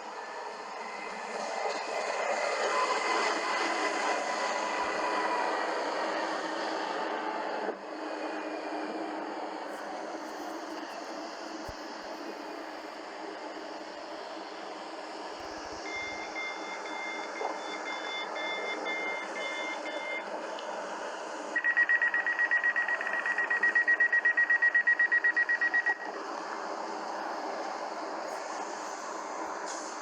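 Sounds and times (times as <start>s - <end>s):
faint two-tone beeping: 15.8s - 20.3s, 21.6s - 26.2s
rapid pulsed warning beep: 15.8s - 20.3s, 21.6s - 26.1s.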